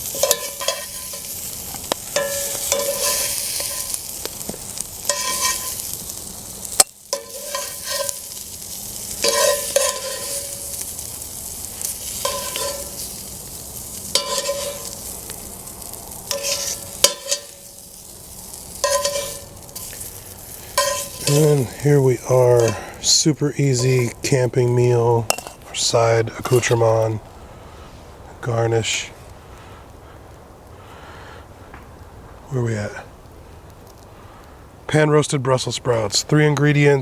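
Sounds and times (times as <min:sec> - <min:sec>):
metal utensil scraping and clinking: 0:00.0 - 0:24.4, 0:25.3 - 0:25.8, 0:26.4 - 0:27.1
vegetables sizzling in a skillet: 0:00.0 - 0:30.0.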